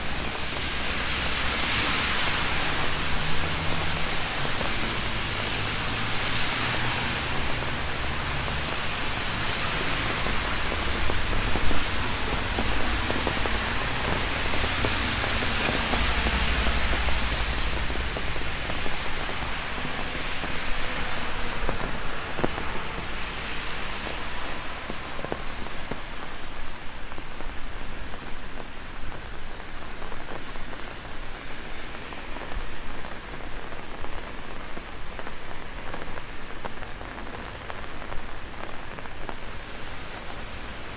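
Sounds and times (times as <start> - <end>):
rain pattering on an umbrella: 0.0 - 40.9
low rumble: 11.2 - 20.2.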